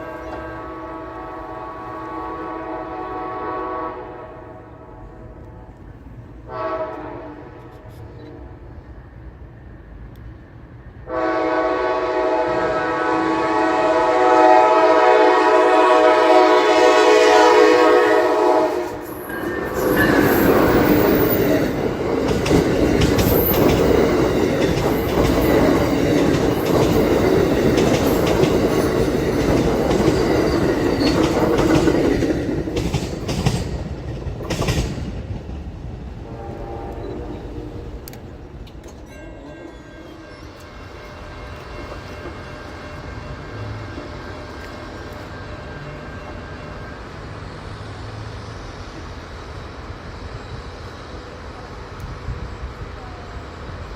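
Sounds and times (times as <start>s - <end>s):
train horn blowing: 0.0s - 5.3s, 6.4s - 8.5s, 11.0s - 21.7s, 36.2s - 38.1s, 39.4s - 47.0s
train wheels rumbling over rails: 0.0s - 39.2s, 40.1s - 53.9s.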